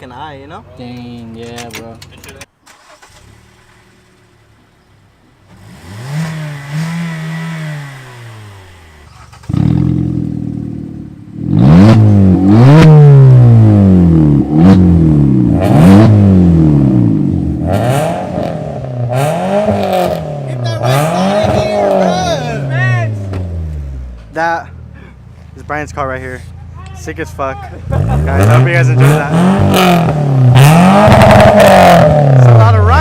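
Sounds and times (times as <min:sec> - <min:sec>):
loud car engine revving: 0:05.5 - 0:24.4, 0:27.7 - 0:33.0.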